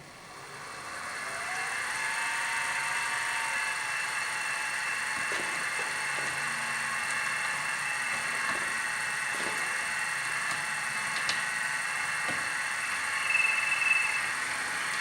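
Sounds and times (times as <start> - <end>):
machine whirring with high whine: 0.0 - 15.0.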